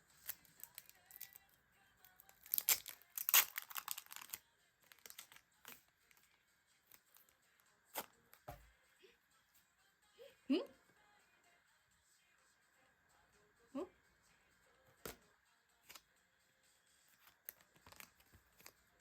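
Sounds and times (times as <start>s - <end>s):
packaging being torn: 0.2s - 1.4s, 2.2s - 5.4s, 17.3s - 18.8s.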